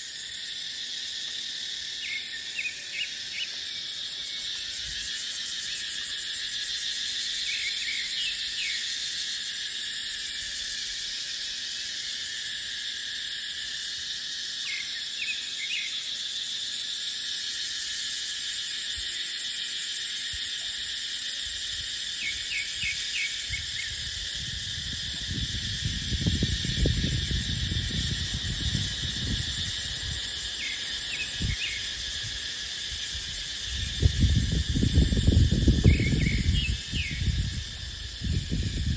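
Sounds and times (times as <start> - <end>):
cicadas droning: 0.0 - 38.9
wind rumbling on microphone: 21.4 - 38.9.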